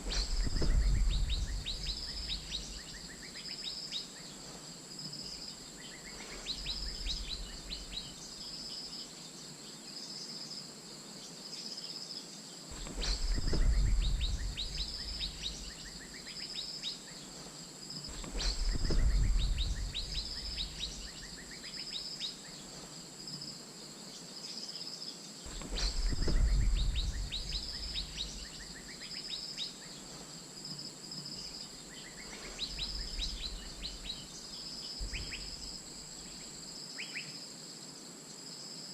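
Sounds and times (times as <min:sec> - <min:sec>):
low rumbles: 0:00.0 - 0:03.0, 0:12.7 - 0:16.1, 0:18.2 - 0:21.2, 0:25.5 - 0:28.8
pulsing insect drone: 0:00.0 - 0:38.9.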